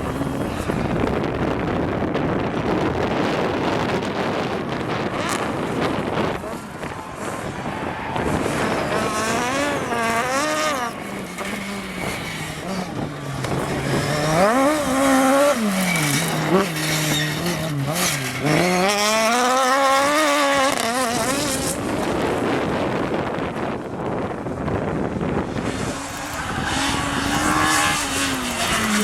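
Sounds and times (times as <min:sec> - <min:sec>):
rally car engine at full throttle: 0:00.0 - 0:29.0.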